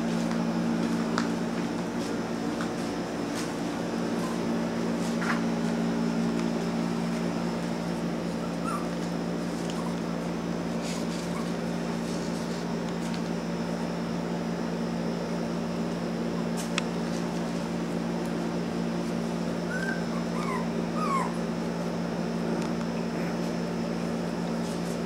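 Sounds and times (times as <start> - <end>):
low electrical hum: 0.0 - 25.0
puppies whimpering: 4.1 - 4.7, 8.1 - 10.2, 10.9 - 11.7, 19.5 - 21.6.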